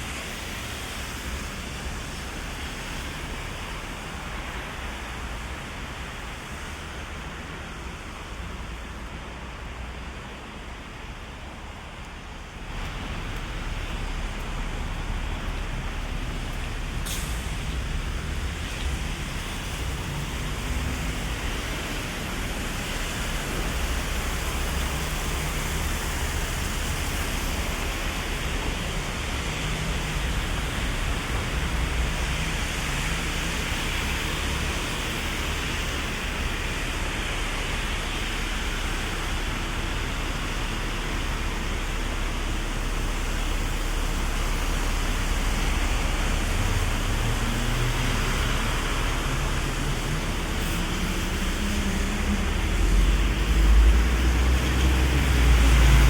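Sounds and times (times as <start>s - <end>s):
city traffic rumbling: 0.0s - 56.0s
passing vehicle engine: 45.4s - 56.0s.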